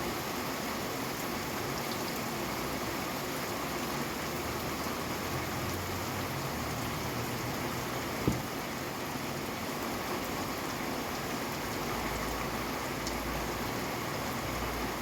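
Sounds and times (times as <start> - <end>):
steady rain falling: 0.0 - 15.0
faint raindrop ticks: 13.0 - 13.3.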